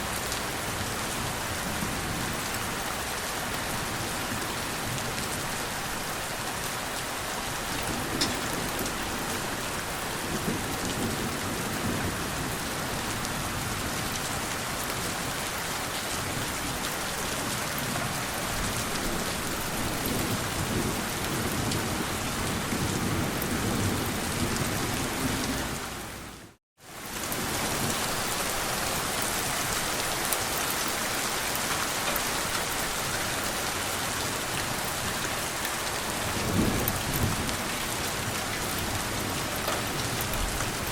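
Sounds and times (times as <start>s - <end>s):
steady rain falling: 0.0s - 40.9s
low rolling thunder: 36.2s - 40.9s.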